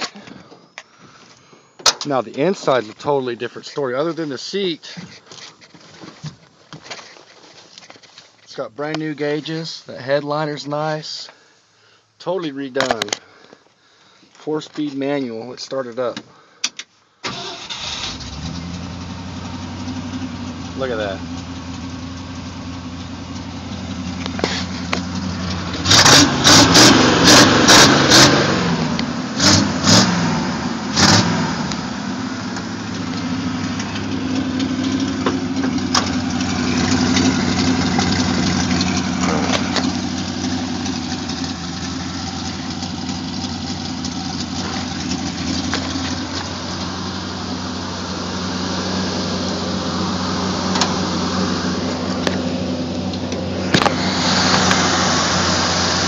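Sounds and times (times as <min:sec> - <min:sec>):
truck engine revving and idling: 0:17.3 - 0:56.0.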